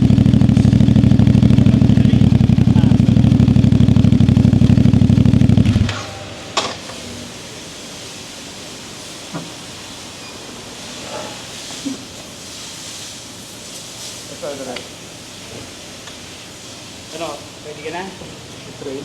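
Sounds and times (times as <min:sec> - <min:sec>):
motorcycle engine idling: 0:00.0 - 0:06.9.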